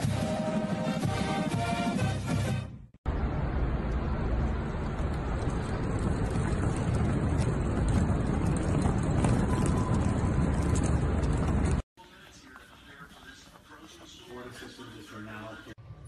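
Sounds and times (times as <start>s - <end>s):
trolley bag wheels rolling: 4.7s - 15.2s.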